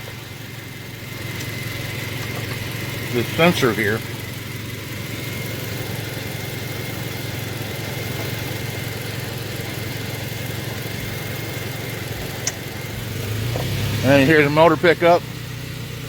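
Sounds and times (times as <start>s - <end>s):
thin steady whine: 0.0s - 16.0s
truck engine idling: 0.0s - 16.0s.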